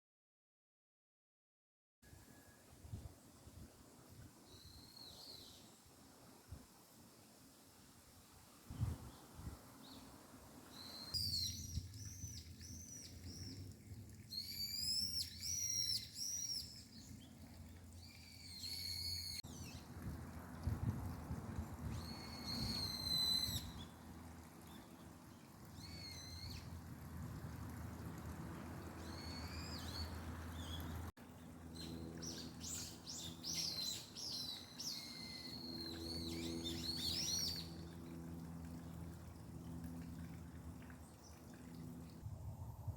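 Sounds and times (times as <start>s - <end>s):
songbird singing: 4.0s - 5.9s, 8.7s - 20.0s, 21.9s - 26.9s, 28.9s - 38.3s
faint low rumble: 42.2s - 42.9s.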